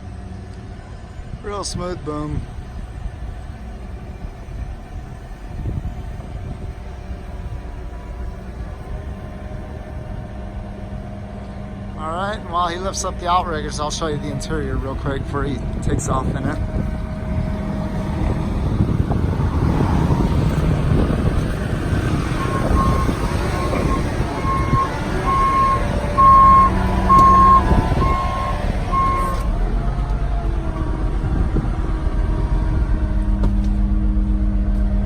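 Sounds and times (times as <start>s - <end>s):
truck engine rumbling: 0.0s - 35.0s
electronic warning beeps: 22.0s - 29.5s.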